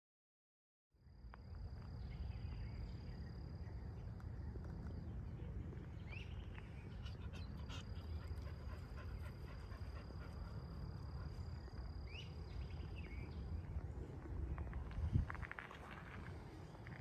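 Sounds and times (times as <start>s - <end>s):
dog panting: 7.0s - 11.5s.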